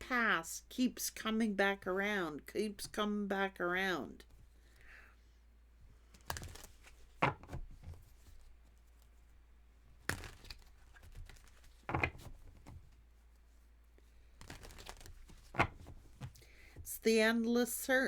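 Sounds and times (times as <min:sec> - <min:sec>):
cards rustling and flicking: 0:06.0 - 0:09.2, 0:10.0 - 0:12.9, 0:14.2 - 0:16.4.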